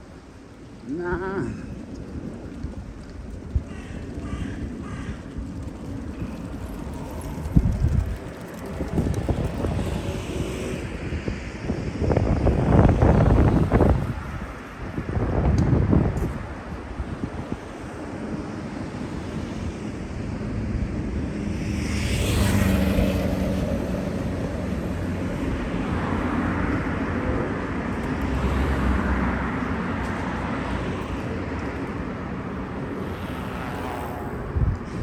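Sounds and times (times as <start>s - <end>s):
traffic noise: 0.0s - 35.0s
wind rumbling on microphone: 0.0s - 35.0s
vehicle passing by: 5.6s - 16.0s, 16.6s - 35.0s.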